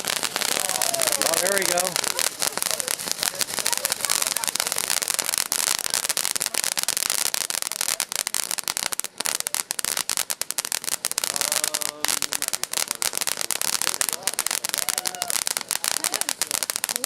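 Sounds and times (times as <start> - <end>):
firework popping and crackling: 0.0 - 17.0.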